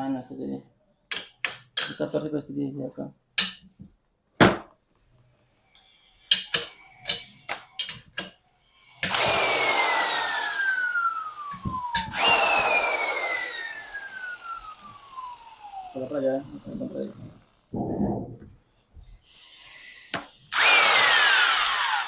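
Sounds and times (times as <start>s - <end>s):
power tool whine: 8.6s - 17.8s, 20.5s - 22.0s.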